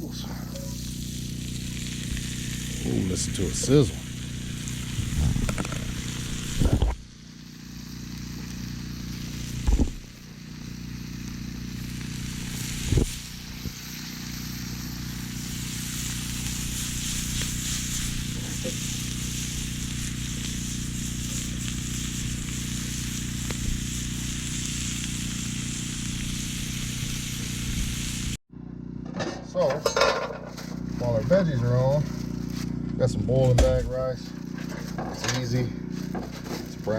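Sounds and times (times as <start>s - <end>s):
vegetables sizzling in butter: 0.5s - 28.4s
dull thumps: 9.6s - 10.1s.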